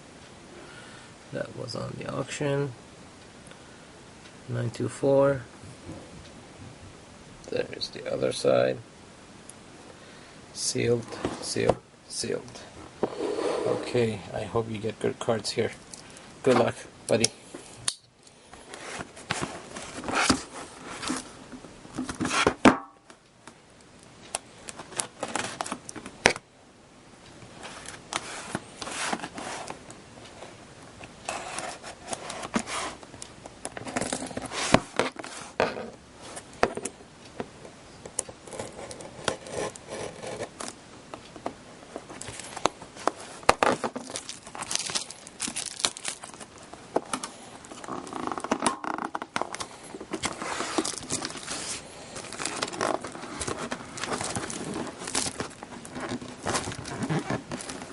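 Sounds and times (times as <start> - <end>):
plastic shrink-wrap tearing: 44.0 - 46.4, 50.3 - 55.6, 56.3 - 57.9.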